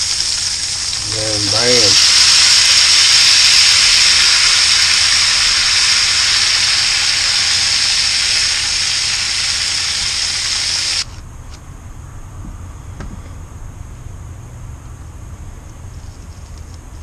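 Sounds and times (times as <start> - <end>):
burger patties sizzling on griddle: 0.0 - 11.2.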